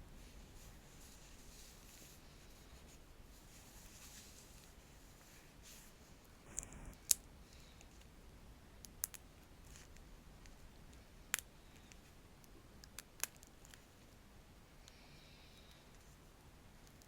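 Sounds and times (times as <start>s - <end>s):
faint scratching: 0.2s - 7.1s.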